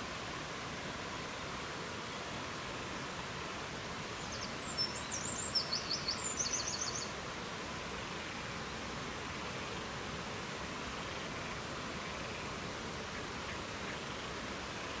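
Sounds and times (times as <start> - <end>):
songbird singing trills: 4.2 - 7.1.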